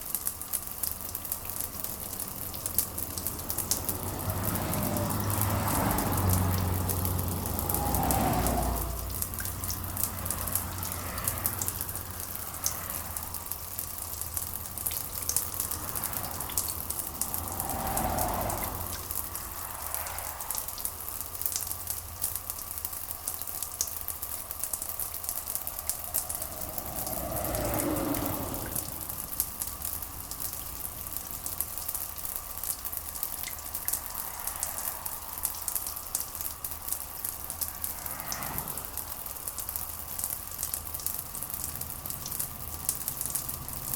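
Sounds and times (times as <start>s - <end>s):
steady rain patter: 0.0s - 43.9s
low rumbles: 24.6s - 31.6s.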